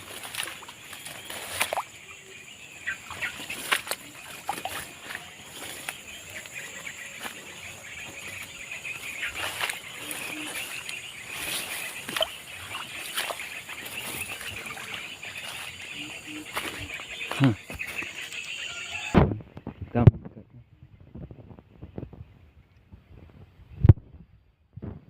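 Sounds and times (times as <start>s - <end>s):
twigs snapping underfoot: 0.0s - 1.9s, 3.1s - 6.6s, 8.1s - 15.8s.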